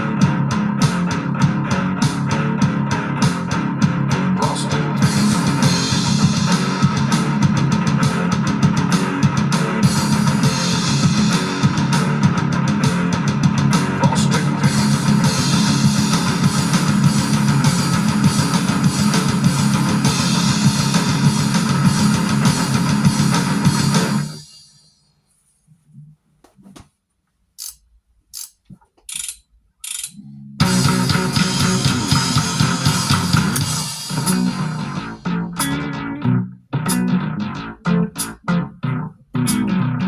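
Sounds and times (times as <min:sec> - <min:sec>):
bass guitar: 0:00.0 - 0:24.5, 0:30.2 - 0:40.0
electric guitar: 0:00.0 - 0:24.5, 0:30.6 - 0:40.0
drum kit with cymbal hits: 0:00.0 - 0:24.9, 0:30.6 - 0:36.1.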